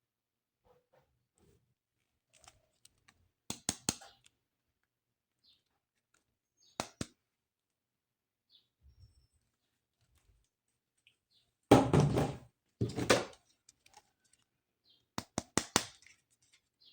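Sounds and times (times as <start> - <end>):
toy packaging handling: 2.0 - 3.4, 12.6 - 15.1, 15.9 - 16.9
sharp plastic clicks: 2.3 - 4.3, 15.2 - 16.2.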